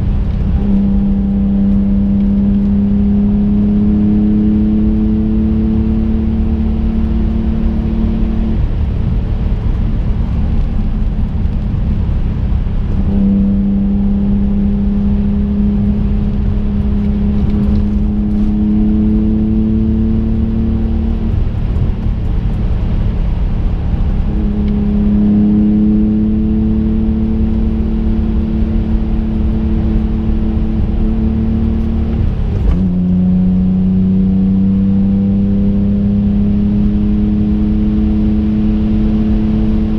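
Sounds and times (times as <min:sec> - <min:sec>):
car engine drone: 0:00.0 - 0:39.9
tyre and road rumble: 0:07.7 - 0:25.9, 0:27.0 - 0:34.4.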